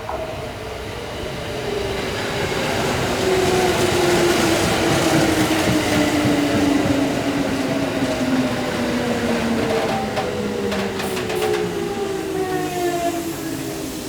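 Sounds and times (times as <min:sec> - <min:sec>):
train wheels rumbling: 0:01.2 - 0:14.0.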